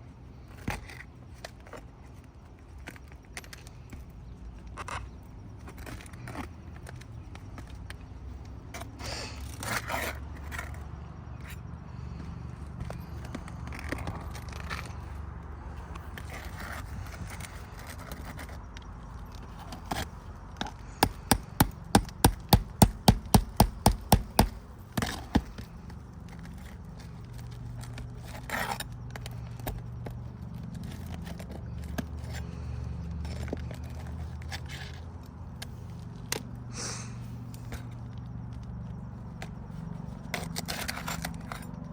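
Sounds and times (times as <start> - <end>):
scrapes and clicks of work: 8.7 - 11.7, 15.8 - 36.5, 40.3 - 41.9
hammer blows: 21.0 - 24.6.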